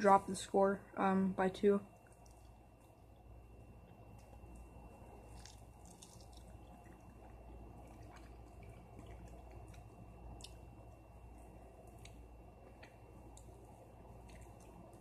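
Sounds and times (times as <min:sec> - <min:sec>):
low steady hum: 0:00.0 - 0:15.0
person chewing: 0:02.0 - 0:03.1, 0:03.9 - 0:11.0, 0:11.8 - 0:15.0.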